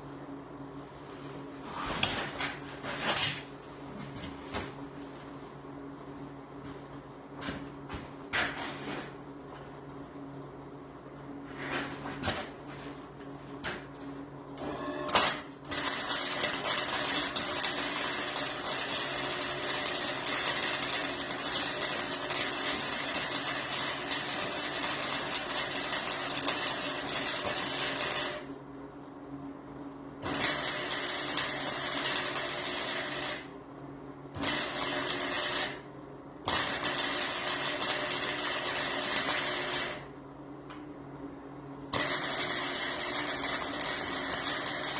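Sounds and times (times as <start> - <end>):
steady low hum: 0.0 - 44.9
arc welder crackling hiss: 14.6 - 28.5, 30.2 - 33.5, 34.4 - 35.8, 36.5 - 40.1, 41.9 - 44.9.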